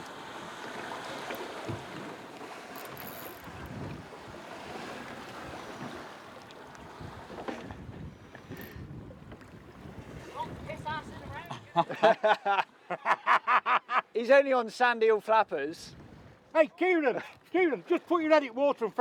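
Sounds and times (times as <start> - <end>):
sea washing around boat: 0.0 - 12.4.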